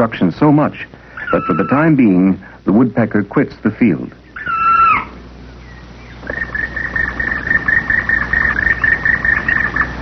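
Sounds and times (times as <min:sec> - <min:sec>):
soundtrack low hum: 0:00.0 - 0:10.0
woodpecker calling: 0:01.0 - 0:02.4, 0:04.0 - 0:10.0.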